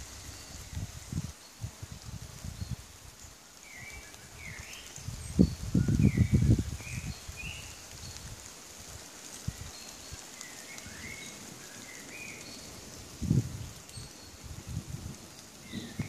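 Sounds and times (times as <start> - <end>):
wind buffeting microphone: 0.0 - 3.0, 4.4 - 8.4, 12.7 - 16.0
woodland birds whistling: 9.8 - 12.9, 15.6 - 16.0.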